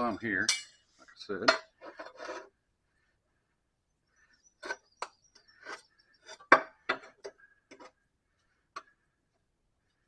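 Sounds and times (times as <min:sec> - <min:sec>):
metal scraper scraping and knocking: 0:01.4 - 0:02.5.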